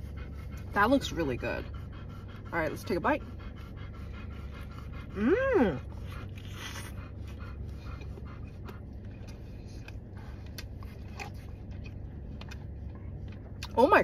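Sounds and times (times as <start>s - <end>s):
dog panting: 0.0s - 13.6s
low car cabin hum: 0.0s - 14.0s
person chewing with mouth clicks: 6.0s - 7.4s.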